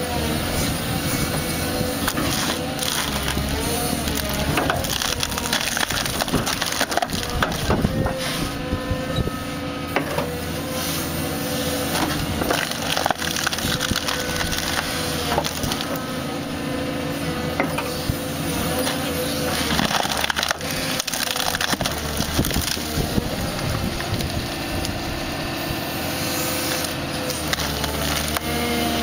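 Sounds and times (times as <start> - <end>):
excavator engine and hydraulics: 0.0 - 29.0
wood cracking and splintering: 2.0 - 8.2, 11.9 - 16.0, 18.8 - 25.0, 26.8 - 28.6.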